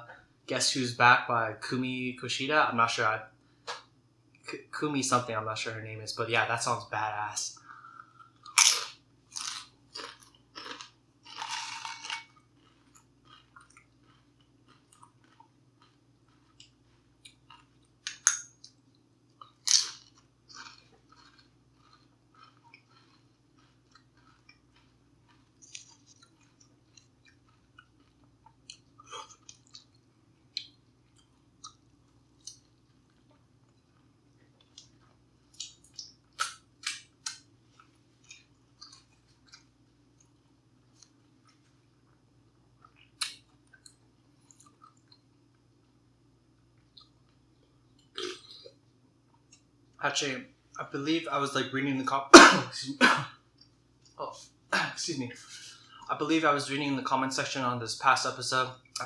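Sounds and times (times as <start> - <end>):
faint electrical hum: 0.0 - 59.0
person chewing: 7.6 - 42.2, 46.7 - 48.8.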